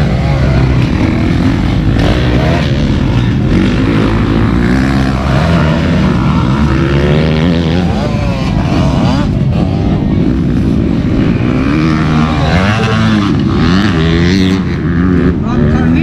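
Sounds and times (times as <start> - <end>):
motocross motorcycle engines revving: 0.0 - 16.0.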